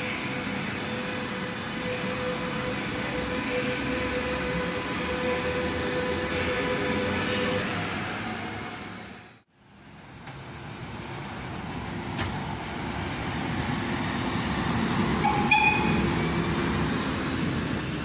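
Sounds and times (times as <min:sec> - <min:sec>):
electric locomotive whine: 0:00.0 - 0:09.4, 0:10.2 - 0:18.0
locomotive running noise: 0:10.1 - 0:18.0
train horn toot: 0:15.2 - 0:16.3.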